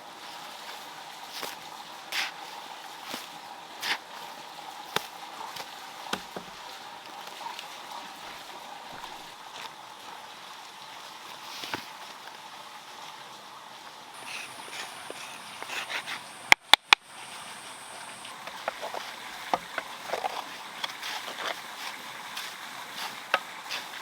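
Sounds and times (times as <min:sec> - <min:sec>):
outdoor background hiss: 0:00.0 - 0:24.0
brief scrapes: 0:14.2 - 0:16.4
faint steady tone: 0:14.2 - 0:21.5.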